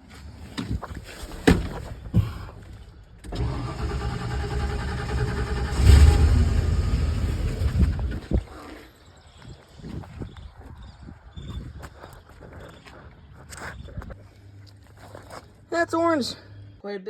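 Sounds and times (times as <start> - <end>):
truck engine starting and running: 1.5 - 8.5.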